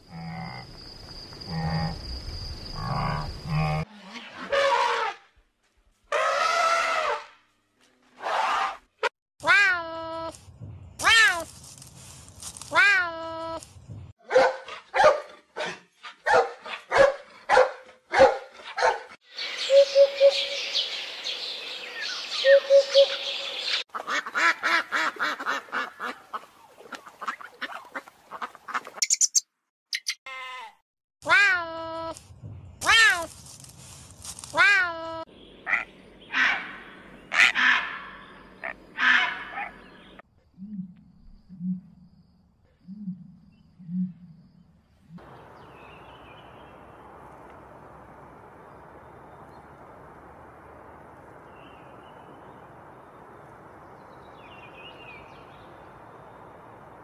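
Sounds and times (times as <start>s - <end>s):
bird and animal calls: 19.3s - 30.2s, 34.4s - 41.9s.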